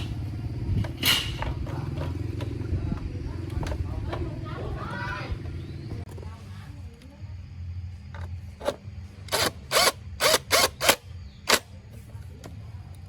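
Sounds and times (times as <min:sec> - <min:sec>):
mechanism ratcheting: 0:09.3 - 0:11.7.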